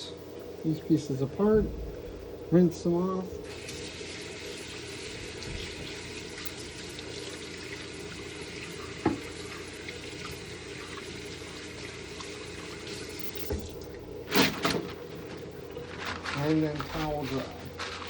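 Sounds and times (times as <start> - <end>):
tap water running: 3.4 - 17.0.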